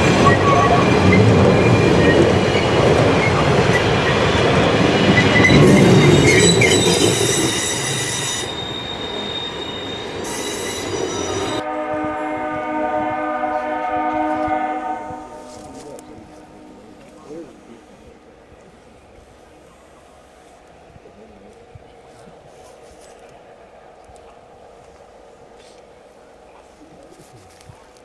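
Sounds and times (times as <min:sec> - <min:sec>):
steam whistle blowing: 0:00.0 - 0:04.4, 0:05.0 - 0:17.4
wheel squeal on rails: 0:00.0 - 0:11.6
steam train rumbling past: 0:00.0 - 0:28.0.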